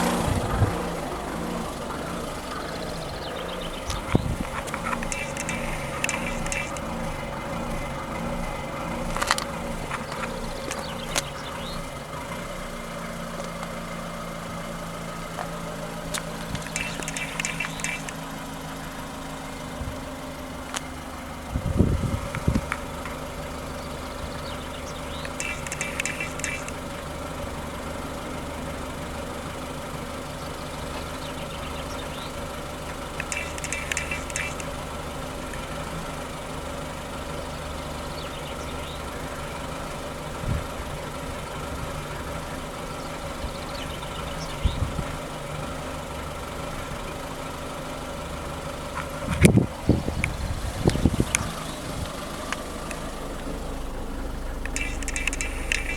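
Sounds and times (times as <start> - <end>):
diesel engine idling: 0.0 - 55.9
high-pitched chirps: 2.3 - 7.1, 16.6 - 18.3, 24.8 - 26.9, 33.2 - 35.0, 53.6 - 55.9.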